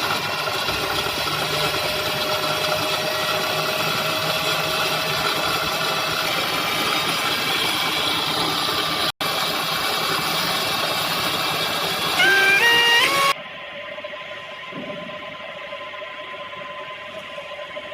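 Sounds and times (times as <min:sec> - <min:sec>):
milling machine humming: 0:00.0 - 0:17.9.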